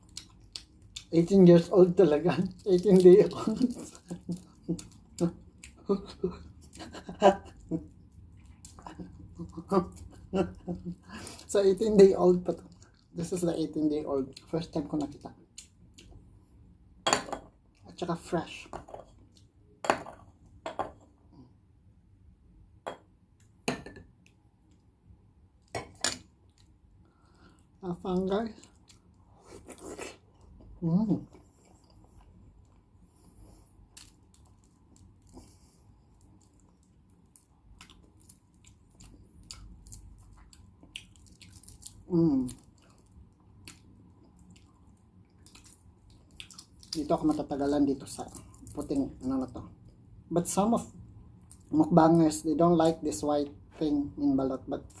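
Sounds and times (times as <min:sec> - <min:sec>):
wet chewing: 0:31.3 - 0:48.9.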